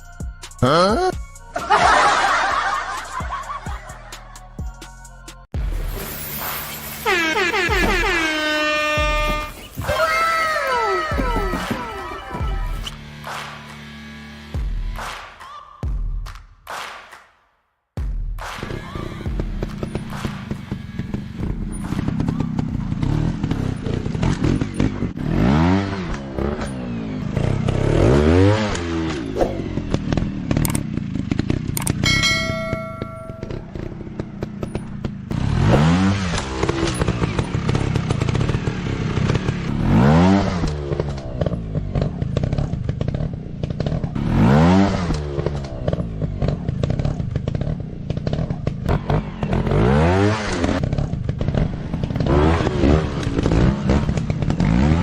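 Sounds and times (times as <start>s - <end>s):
dirt bike engines revving: 6.4s - 14.3s, 18.6s - 55.0s
brief steady tone: 32.1s - 33.7s.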